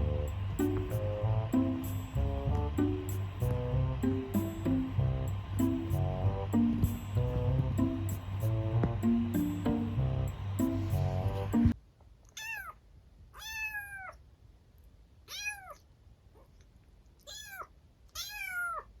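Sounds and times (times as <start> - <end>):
background music: 0.0 - 11.8
kitten meowing: 12.4 - 12.8, 13.4 - 14.2, 15.3 - 15.8, 17.2 - 18.9.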